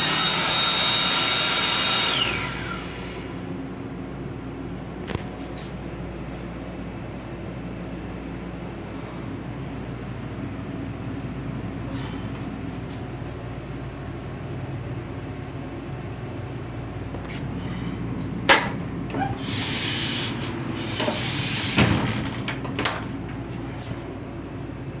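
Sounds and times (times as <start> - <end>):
electric railcar rumble: 13.5 - 24.8
air hiss: 17.4 - 24.0.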